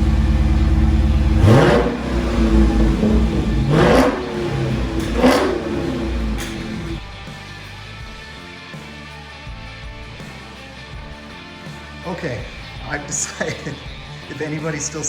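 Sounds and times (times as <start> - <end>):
car exhaust idling and revving: 0.0 - 7.0.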